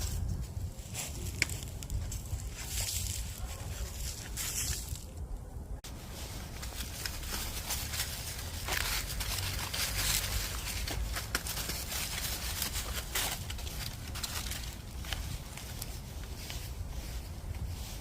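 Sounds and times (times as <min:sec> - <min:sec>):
rustling: 0:00.0 - 0:18.0
scuffing footsteps: 0:06.1 - 0:18.0.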